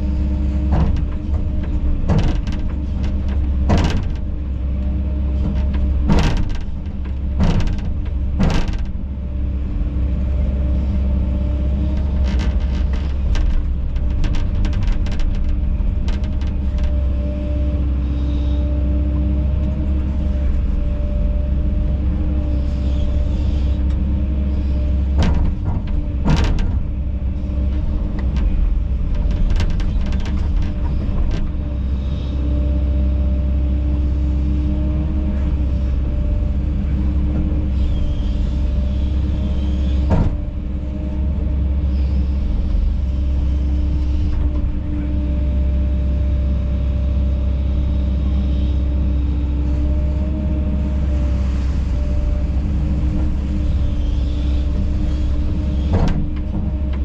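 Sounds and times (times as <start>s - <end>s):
excavator diesel engine running: 0.0s - 57.0s
sharp knocks and clanks: 0.6s - 9.1s, 25.0s - 31.6s, 39.4s - 40.6s.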